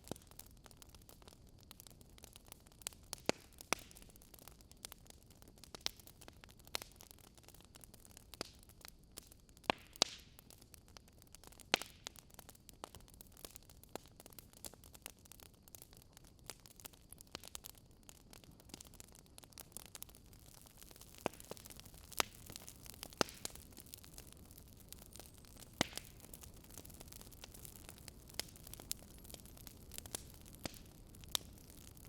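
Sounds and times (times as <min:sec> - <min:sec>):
wood fire crackling: 0:00.0 - 0:32.0
loud fire pops: 0:09.2 - 0:10.4, 0:19.6 - 0:32.0.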